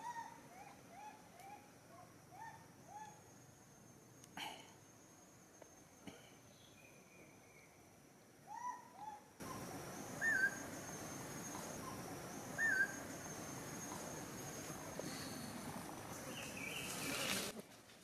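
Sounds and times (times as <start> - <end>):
background hiss: 0.0 - 18.0
whistled animal calls: 8.5 - 10.7, 11.8 - 14.0
steady high whine: 9.4 - 17.5.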